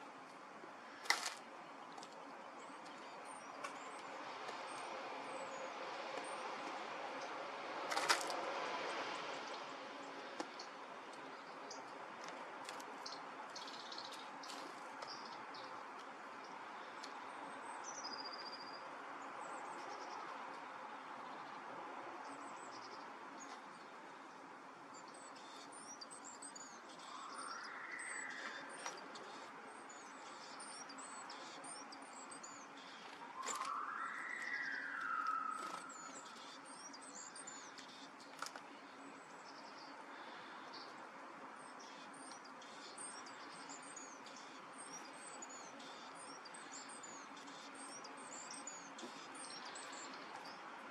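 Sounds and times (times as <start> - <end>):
small birds chirping: 0.0 - 50.9
steady background hum: 0.0 - 50.9.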